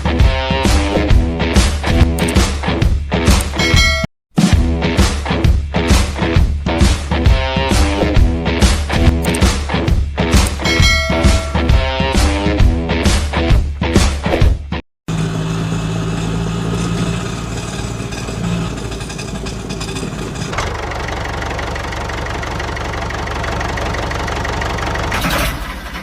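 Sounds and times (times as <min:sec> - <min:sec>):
engine idling: 0:15.1 - 0:26.0.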